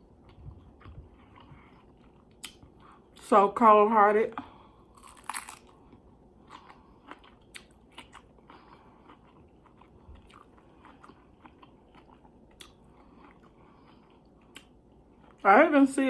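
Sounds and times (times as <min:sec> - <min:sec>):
person chewing food: 0:00.0 - 0:03.2, 0:04.8 - 0:15.4
mouth clicks and crunches: 0:05.0 - 0:05.7.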